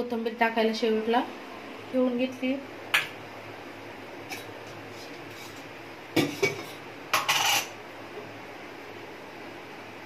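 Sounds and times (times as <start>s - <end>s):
utensils clattering scrape: 4.3s - 7.8s
dishes clinking: 6.2s - 7.8s.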